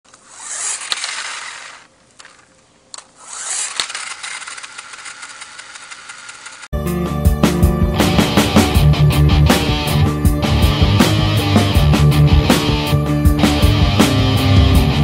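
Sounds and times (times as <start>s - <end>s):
toy tractor whirring: 0.1s - 6.7s.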